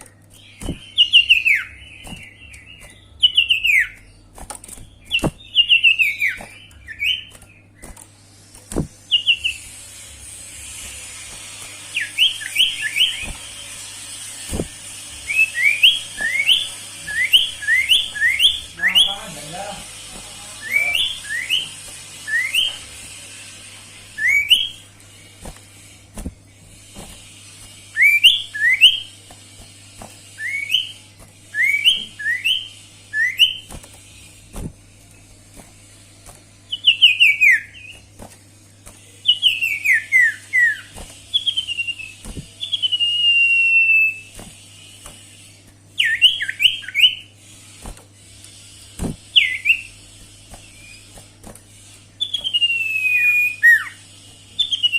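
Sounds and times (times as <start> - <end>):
bird whistling song: 0.1 - 4.2, 4.8 - 8.1, 9.0 - 9.8, 11.8 - 23.0, 24.1 - 25.4, 26.6 - 34.4, 36.6 - 38.1, 39.1 - 47.3, 49.2 - 51.4, 52.2 - 54.9.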